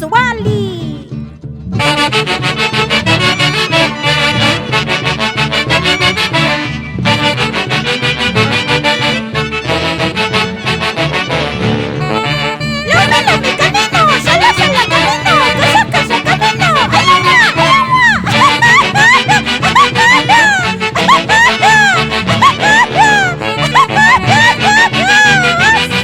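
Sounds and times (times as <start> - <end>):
lively wind-led dance music: 12.4 - 26.0.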